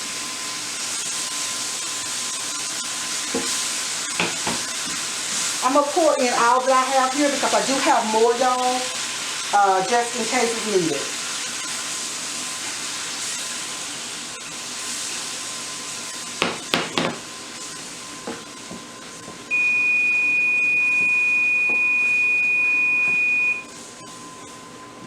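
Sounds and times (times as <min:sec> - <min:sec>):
broth sizzling in a pan: 0:00.0 - 0:25.0
utensil knocking against pan: 0:04.2 - 0:04.6, 0:16.4 - 0:17.2
kitchen timer beep: 0:19.5 - 0:23.7.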